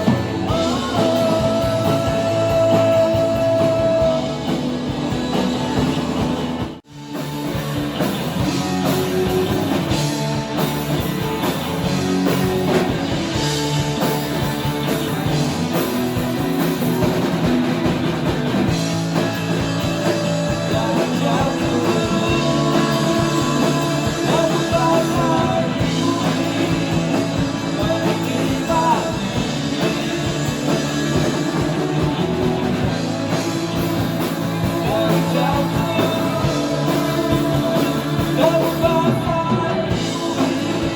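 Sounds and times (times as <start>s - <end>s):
person singing: 0.0s - 5.6s, 20.0s - 32.2s, 33.8s - 40.9s
rock band playing: 0.0s - 40.9s.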